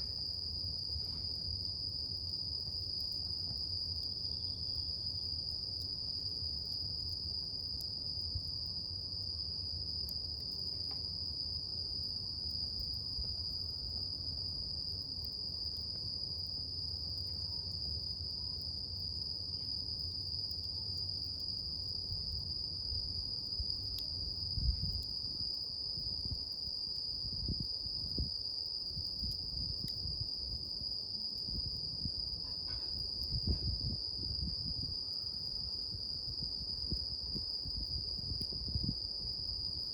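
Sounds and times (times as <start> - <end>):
campfire rumbling and crackling: 0.0 - 39.8
insects chirring: 10.1 - 39.9.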